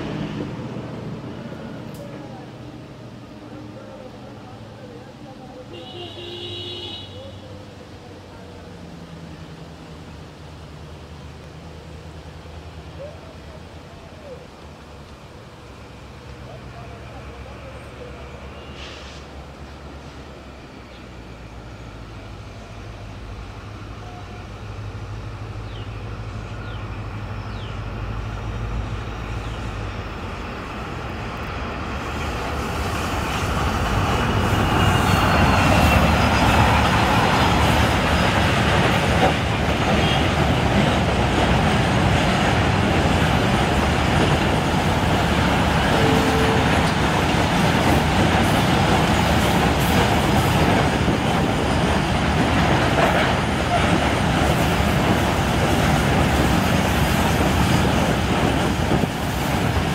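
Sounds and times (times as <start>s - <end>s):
locomotive engine drone: 0.0s - 5.7s, 7.5s - 59.9s
train wheels rolling: 27.5s - 59.9s.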